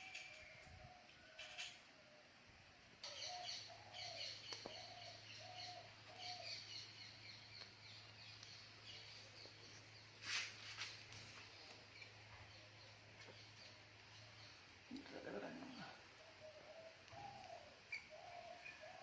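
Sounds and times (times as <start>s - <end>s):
faint bird calls: 12.4s - 19.0s.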